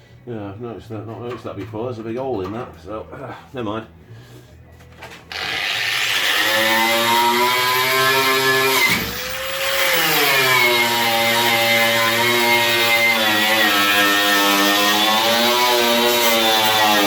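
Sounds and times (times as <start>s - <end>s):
electric power tool running: 5.3s - 17.0s.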